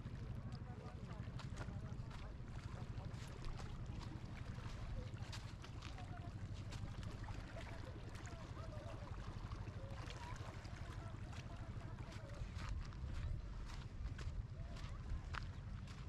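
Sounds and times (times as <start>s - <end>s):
wind rumble on microphone: 11.6s - 16.0s.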